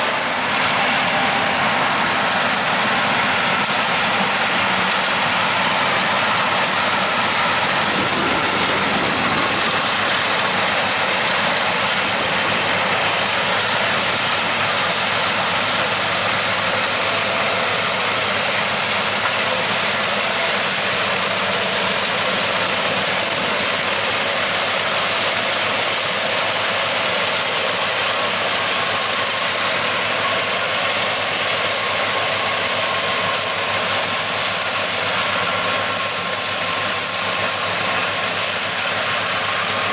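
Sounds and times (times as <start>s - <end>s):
combine harvesters and tractors running: 0.0s - 39.9s.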